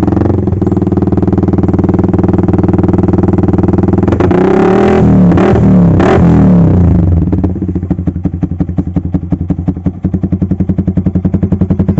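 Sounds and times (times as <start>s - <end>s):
motorcycle engine revving and idling: 0.0s - 11.9s.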